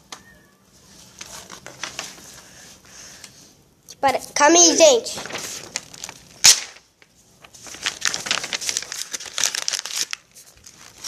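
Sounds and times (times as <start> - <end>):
paper crumpling: 0.8 - 2.5, 5.1 - 11.0
paper snapping: 5.2 - 6.8.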